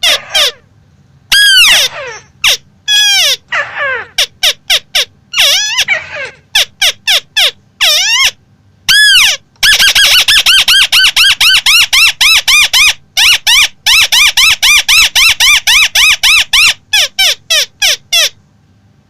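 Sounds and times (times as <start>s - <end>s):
crake calling: 0.0s - 0.7s, 1.3s - 18.4s.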